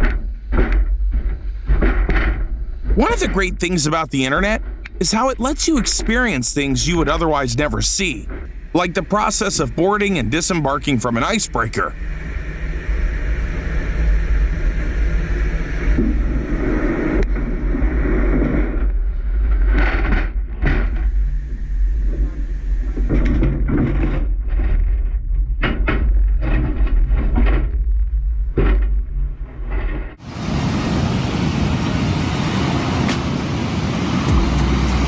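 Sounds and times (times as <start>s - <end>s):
ship engines rumbling: 2.9s - 12.0s, 30.2s - 35.0s.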